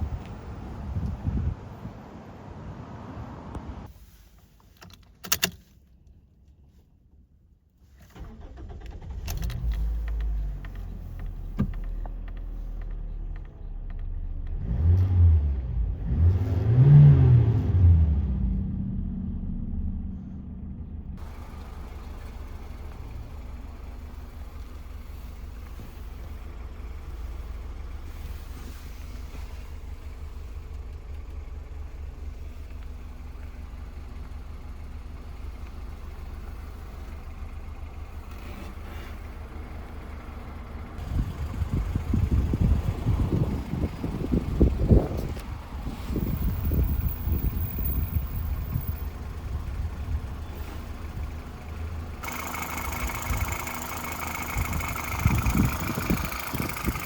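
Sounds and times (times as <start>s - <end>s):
car engine idling: 8.2s - 14.8s, 18.1s - 57.0s
car engine revving: 14.5s - 29.7s, 52.2s - 57.0s.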